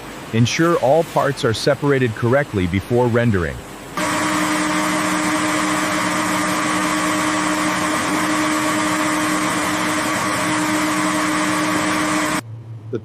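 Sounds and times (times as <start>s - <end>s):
constant machine hum: 3.6s - 13.0s
machinery hissing: 4.0s - 12.4s.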